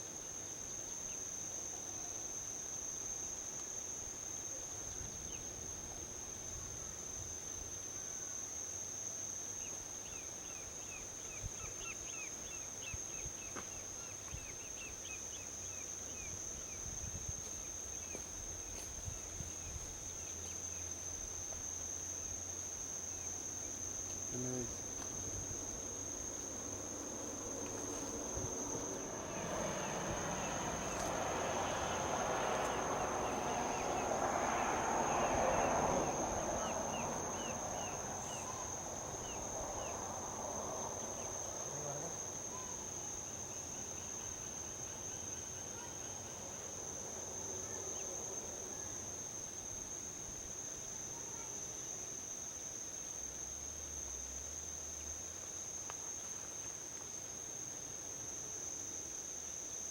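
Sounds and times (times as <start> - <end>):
high-pitched insect trill: 0.2 - 59.9
vehicle passing by: 25.4 - 42.4.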